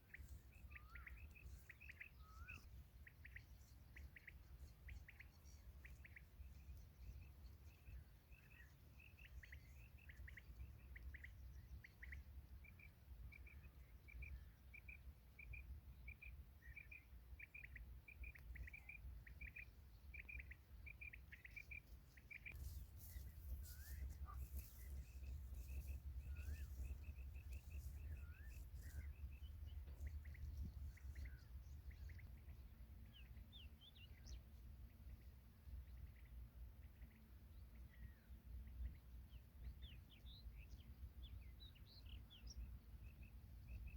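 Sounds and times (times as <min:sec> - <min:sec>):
faint bird chirps: 0:00.0 - 0:43.9
wind rumble on microphone: 0:22.6 - 0:33.1.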